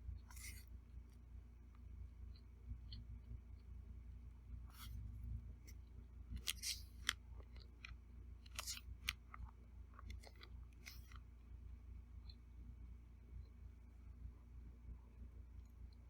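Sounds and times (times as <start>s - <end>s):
chewing crunches: 6.4s - 11.2s.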